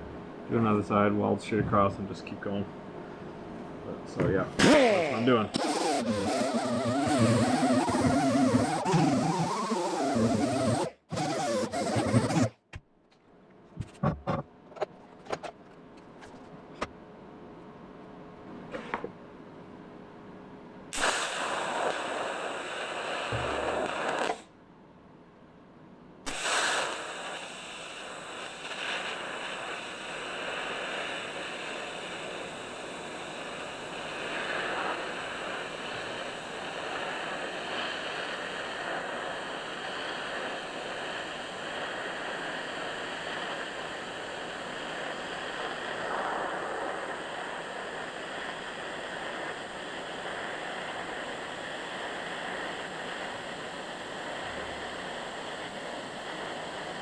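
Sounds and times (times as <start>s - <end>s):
welding arc crackling and hissing: 4.6s - 12.6s, 21.0s - 24.5s, 26.3s - 57.0s.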